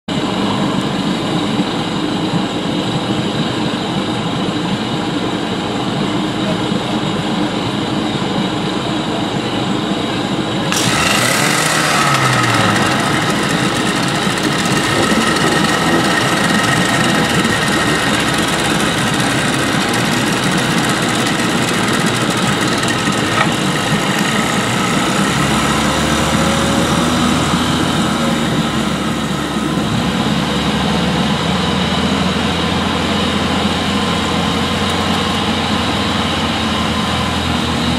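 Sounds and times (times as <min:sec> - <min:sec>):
vehicle engine running: 0:10.5 - 0:37.9.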